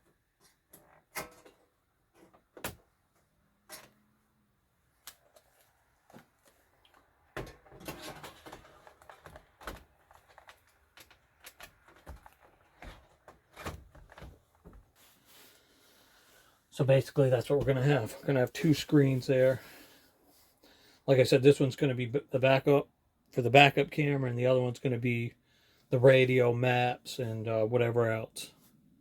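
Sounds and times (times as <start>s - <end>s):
plastic rubbing: 5.1s - 15.2s.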